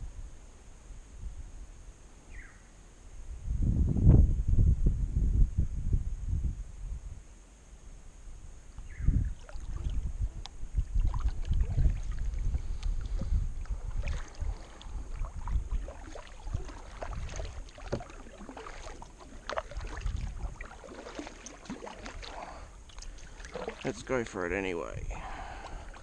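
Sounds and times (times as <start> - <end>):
kayak paddle splashing water: 9.3 - 10.1, 10.7 - 24.5, 25.1 - 26.0
water drips: 9.4 - 24.4.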